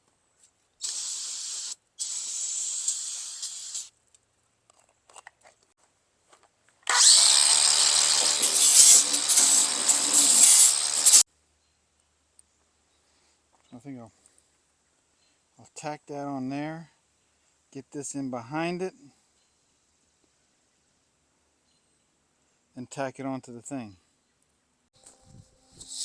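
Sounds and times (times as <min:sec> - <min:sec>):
aerosol spray hissing: 0:00.8 - 0:03.9, 0:07.7 - 0:11.2, 0:25.8 - 0:26.0
angle grinder on metal: 0:06.9 - 0:11.2.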